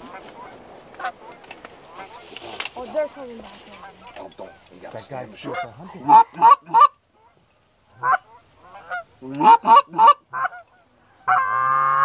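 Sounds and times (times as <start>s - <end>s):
goose honking: 0.0s - 2.9s, 3.7s - 12.0s.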